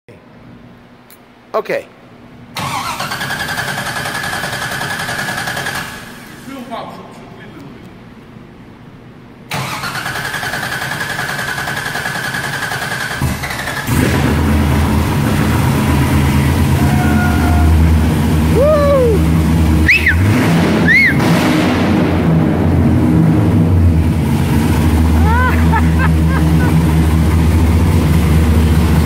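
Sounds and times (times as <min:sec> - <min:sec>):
car engine running: 0:13.8 - 0:29.0.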